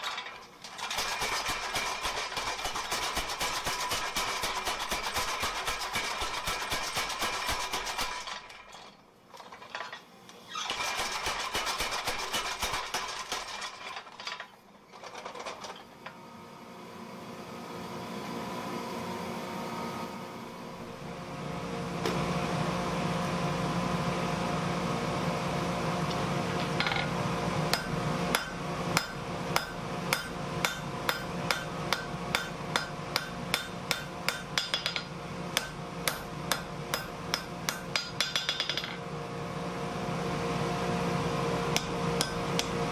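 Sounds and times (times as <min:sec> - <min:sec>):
hammer striking steel: 0:27.7 - 0:39.0, 0:41.8 - 0:42.8
power hammer motor humming: 0:35.6 - 0:38.0.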